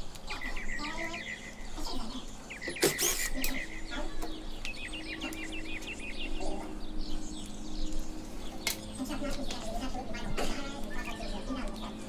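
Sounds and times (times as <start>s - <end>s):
small bird chirping: 0.0s - 12.0s
cordless drill humming: 2.6s - 3.5s.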